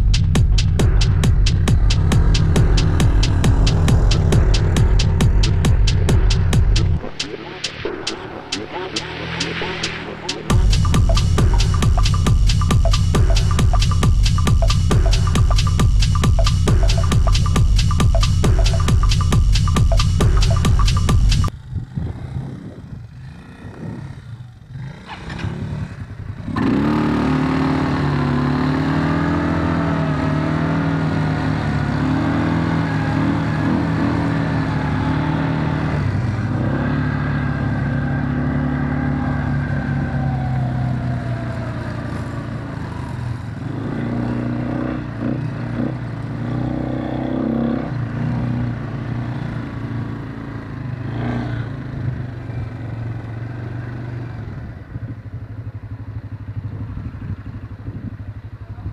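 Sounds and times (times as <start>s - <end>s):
quad bike engine revving: 0.7s - 7.0s, 21.6s - 54.7s.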